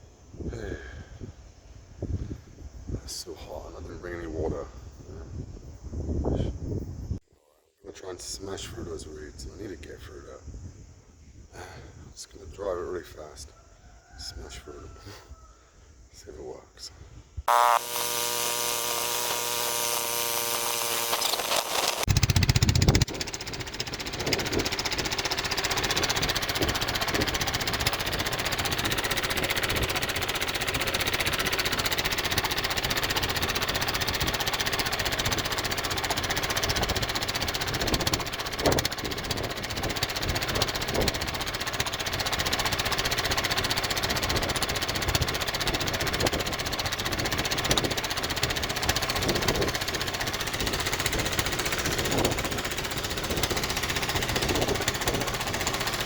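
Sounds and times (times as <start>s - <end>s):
boat engine running hard: 21.9s - 56.0s.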